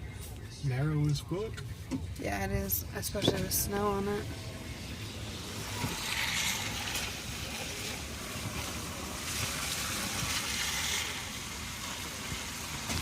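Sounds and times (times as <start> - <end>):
car road rumble: 0.1 - 13.0
tyre hiss: 5.3 - 13.0.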